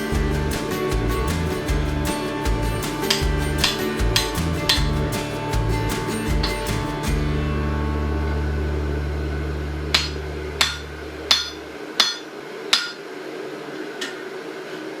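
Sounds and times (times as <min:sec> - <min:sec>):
low background music: 0:00.0 - 0:11.6
hammer striking steel on anvil: 0:10.0 - 0:13.0.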